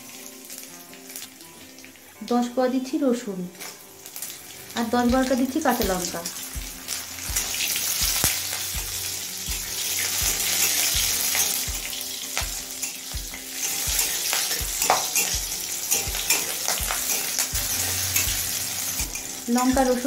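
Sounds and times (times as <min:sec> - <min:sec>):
food sizzling in hot oil: 0:00.0 - 0:20.0
spatula scraping metal pan: 0:09.5 - 0:11.7, 0:12.7 - 0:19.4.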